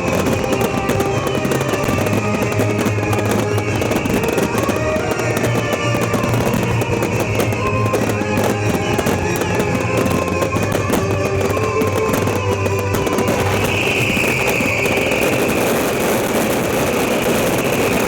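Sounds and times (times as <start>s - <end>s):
fireworks crackling and popping: 0.0s - 18.0s
loud music: 0.0s - 18.0s.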